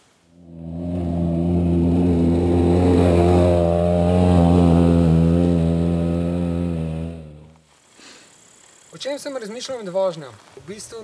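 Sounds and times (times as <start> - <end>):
vehicle engine running under throttle: 0.4 - 7.6.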